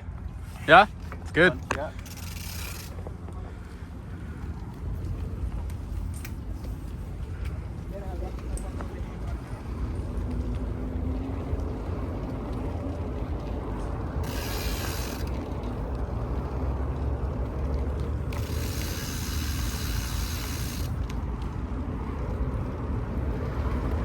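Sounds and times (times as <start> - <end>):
bike hub ratchet ticking: 2.0 - 3.0, 14.2 - 15.8, 18.2 - 21.1
low rolling rumble: 2.0 - 24.0.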